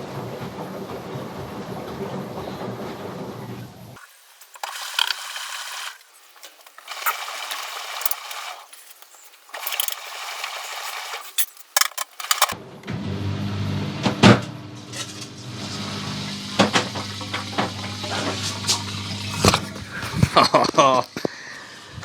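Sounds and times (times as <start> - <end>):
washing machine drum turning: 13.6 - 20.6
water swishing: 15.0 - 20.3.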